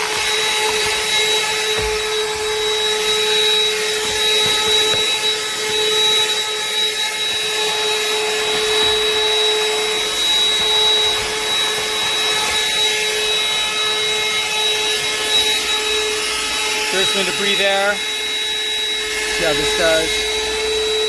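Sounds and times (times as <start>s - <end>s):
handheld vacuum motor whine: 0.0s - 21.0s.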